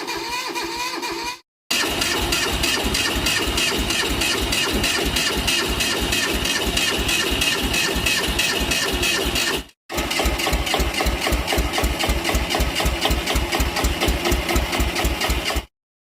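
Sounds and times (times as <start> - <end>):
tractor engine idling: 1.7 - 7.5, 9.9 - 15.6.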